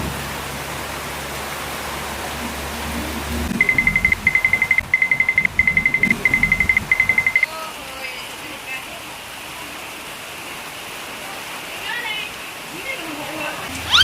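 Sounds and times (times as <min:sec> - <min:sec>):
rain hissing: 0:00.0 - 0:14.0
electronic alarm beeping: 0:03.6 - 0:07.5.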